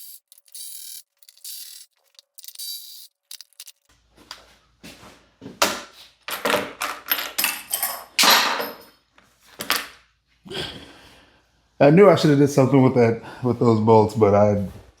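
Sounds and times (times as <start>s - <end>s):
metal parts and tools clattering: 0.0s - 3.9s, 6.3s - 10.0s
part being dropped: 0.0s - 3.9s.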